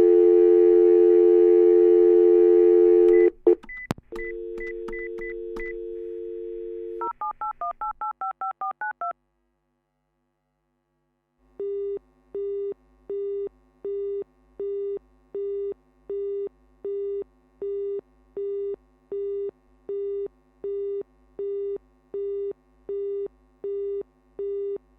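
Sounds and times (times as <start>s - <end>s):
busy signal beeping: 0.0s - 3.3s
dial tone: 0.0s - 3.3s, 4.2s - 7.1s
touch-tone keypresses: 3.1s - 5.8s.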